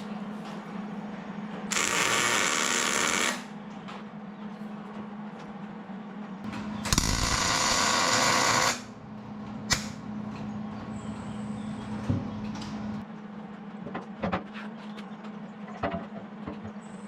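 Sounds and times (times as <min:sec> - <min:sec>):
steady low hum: 0:00.0 - 0:17.0
arc welding noise: 0:01.7 - 0:03.6, 0:06.5 - 0:10.2
sharp click: 0:09.7 - 0:10.0.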